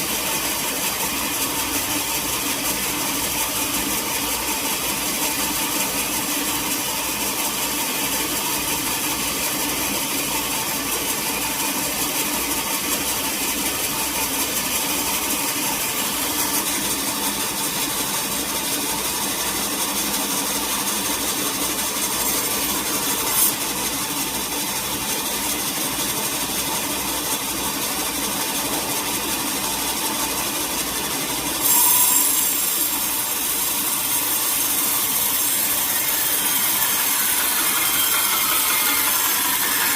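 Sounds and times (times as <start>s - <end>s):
saw cutting wood: 0.0s - 39.9s
sawmill machinery humming: 0.0s - 39.9s.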